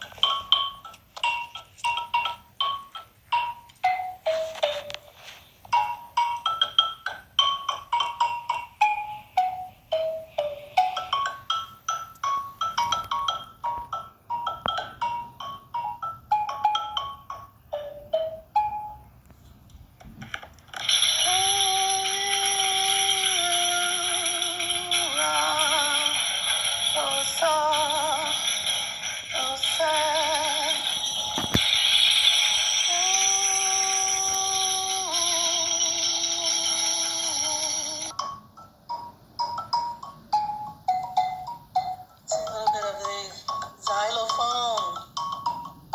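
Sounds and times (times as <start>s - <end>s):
xylophone notes: 0.0s - 19.2s, 20.8s - 45.9s.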